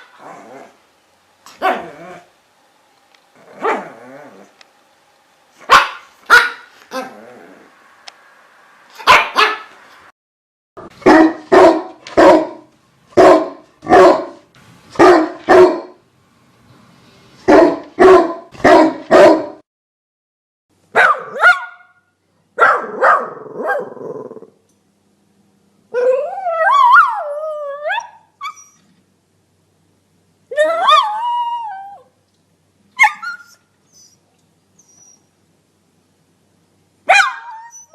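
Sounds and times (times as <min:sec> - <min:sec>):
dog barking: 0:01.6 - 0:02.0, 0:03.6 - 0:03.9, 0:05.6 - 0:07.1, 0:09.0 - 0:09.8, 0:11.0 - 0:14.4, 0:15.0 - 0:16.0, 0:17.5 - 0:19.6, 0:20.9 - 0:22.0, 0:22.6 - 0:24.0, 0:37.1 - 0:37.8
dog sharp barks: 0:05.6 - 0:06.7, 0:09.0 - 0:09.8, 0:10.9 - 0:14.4, 0:15.0 - 0:16.0, 0:17.5 - 0:19.6, 0:20.9 - 0:22.0, 0:22.6 - 0:23.9, 0:37.1 - 0:37.5
dog howling: 0:25.9 - 0:28.2, 0:30.6 - 0:32.1.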